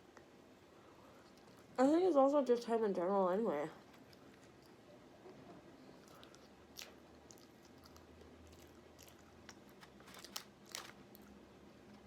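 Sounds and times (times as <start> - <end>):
person chewing: 5.9 - 11.3.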